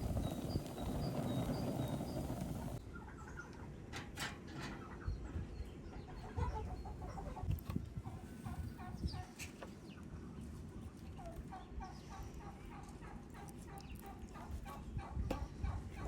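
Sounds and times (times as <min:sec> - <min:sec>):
chickens clucking: 0:04.7 - 0:10.0, 0:11.2 - 0:16.0.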